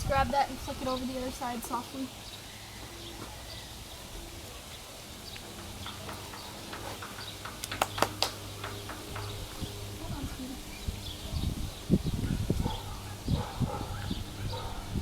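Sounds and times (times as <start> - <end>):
hooves and tack tapping: 5.3 - 10.2
sharp clicks: 5.4 - 9.4.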